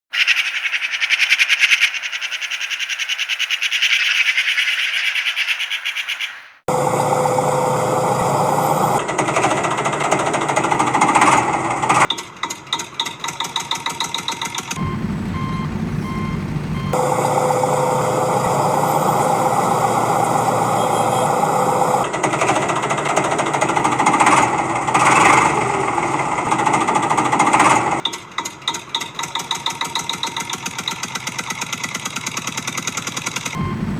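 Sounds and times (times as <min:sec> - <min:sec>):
rapid rattle: 0:00.2 - 0:06.2, 0:08.4 - 0:14.8, 0:21.3 - 0:33.6
heavy machinery engine: 0:06.7 - 0:33.9
evenly spaced beeps: 0:13.7 - 0:24.4, 0:33.5 - 0:33.9.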